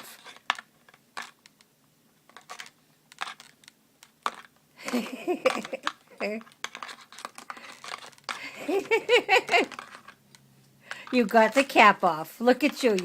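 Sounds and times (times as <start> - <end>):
plastic bottle clicking and crackling: 2.3 - 8.4.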